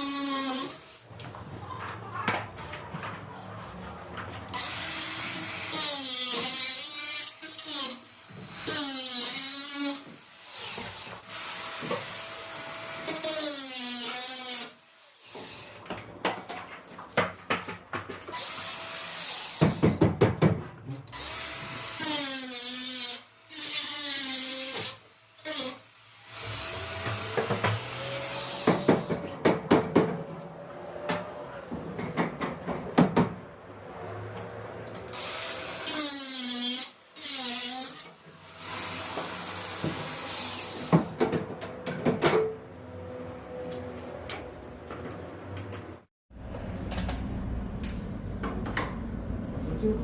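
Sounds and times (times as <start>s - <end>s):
power drill running: 25.4s - 28.8s.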